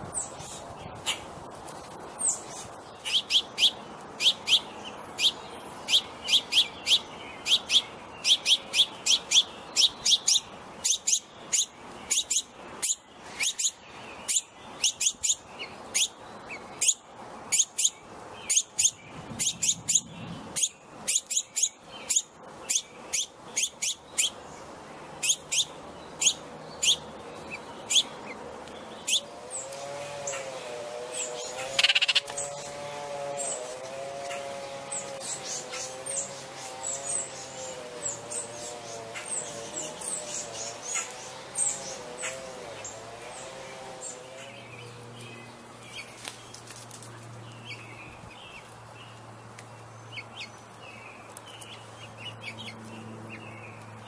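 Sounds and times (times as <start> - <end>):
songbird chirping: 0.0 - 54.0.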